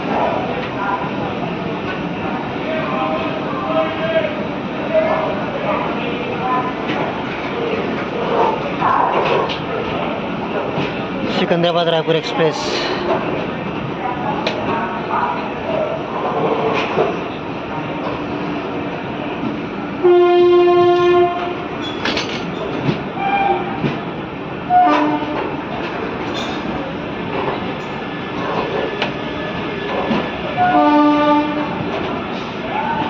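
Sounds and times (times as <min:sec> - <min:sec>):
train rumbling on tracks: 0:00.0 - 0:33.0
locomotive horn: 0:20.0 - 0:21.7, 0:24.7 - 0:25.5, 0:30.6 - 0:31.8.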